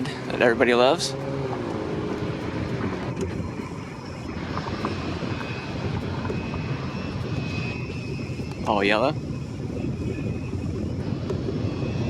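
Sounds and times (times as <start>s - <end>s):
airplane engine rushing: 0.0s - 12.0s
faint high whine: 3.0s - 12.0s.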